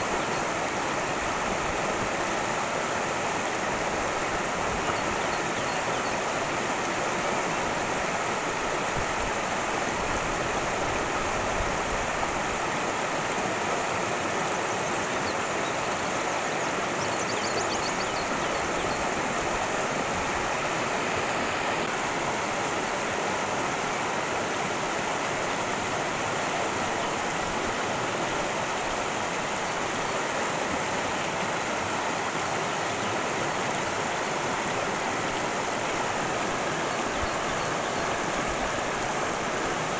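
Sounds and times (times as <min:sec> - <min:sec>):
water rushing over rocks: 0:00.0 - 0:17.0, 0:17.8 - 0:39.9.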